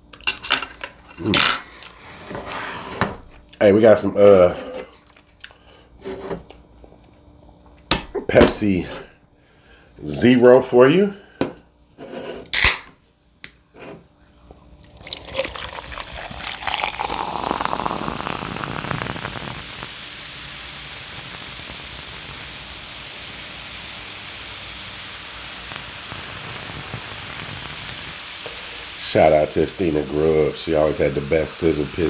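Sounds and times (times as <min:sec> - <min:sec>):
fizzing carbonation: 0:14.7 - 0:32.0
soda poured into a glass: 0:14.8 - 0:32.0.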